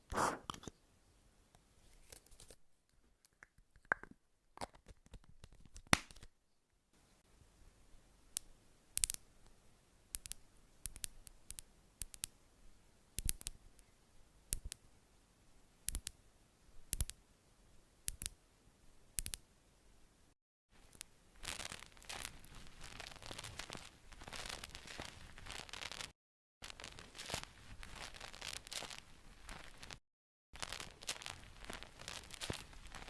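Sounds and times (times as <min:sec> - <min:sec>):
crackling rustle: 0:20.8 - 0:30.0, 0:30.6 - 0:33.0.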